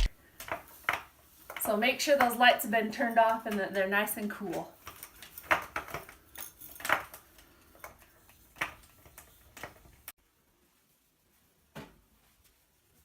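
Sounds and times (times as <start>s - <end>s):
light clinks and taps: 4.6s - 10.1s.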